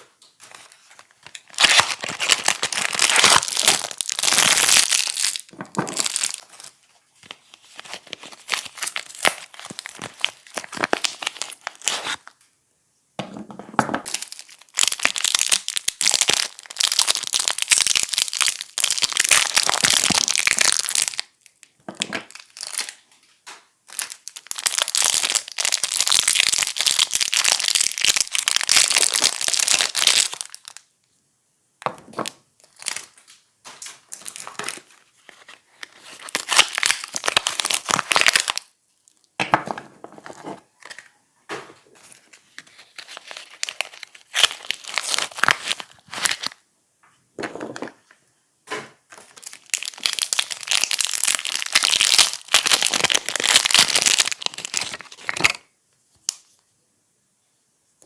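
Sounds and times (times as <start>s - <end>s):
packaging crinkling and tearing: 0.4s - 12.4s, 14.0s - 23.1s, 23.9s - 30.8s, 32.2s - 39.3s, 42.0s - 46.6s, 49.1s - 55.7s.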